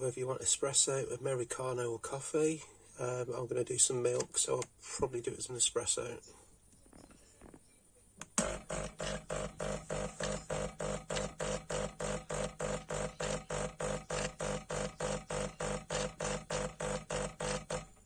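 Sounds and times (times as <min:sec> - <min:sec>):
steady machine hum: 0:08.3 - 0:18.0
espresso machine pump pulsing: 0:08.4 - 0:18.0.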